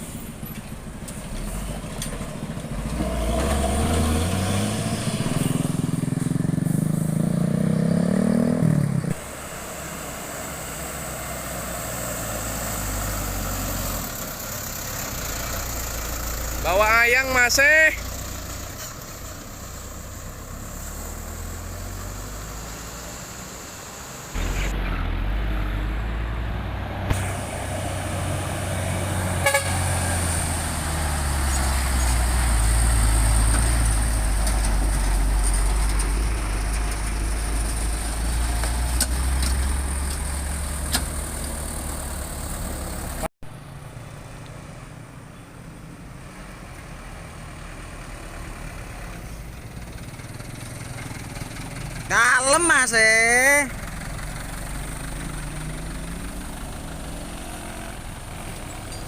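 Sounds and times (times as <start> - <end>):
heavy truck engines rumbling: 0.0 - 59.0.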